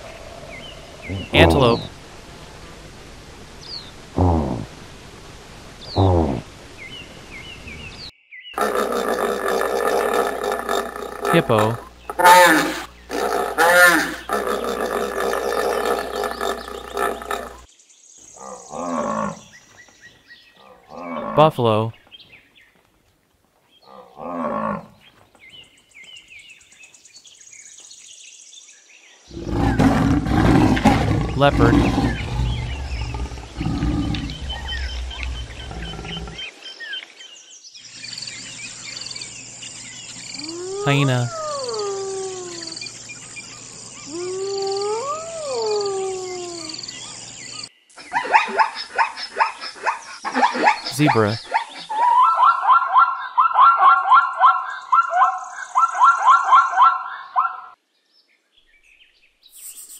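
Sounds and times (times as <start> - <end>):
birds chirping: 0.0 - 2.1, 5.7 - 22.9, 23.7 - 59.9
hyena cackling: 8.6 - 17.6, 40.4 - 42.9
buffalo moaning call: 8.6 - 17.7, 29.4 - 36.4, 44.1 - 46.8
hyena whooping: 40.4 - 42.9, 44.1 - 46.8.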